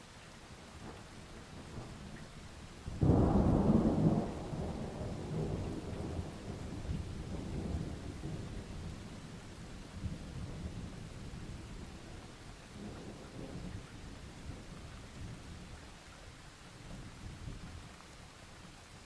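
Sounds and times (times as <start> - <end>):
steady rain: 0.0 - 19.0
thunder rumbling: 2.9 - 12.1.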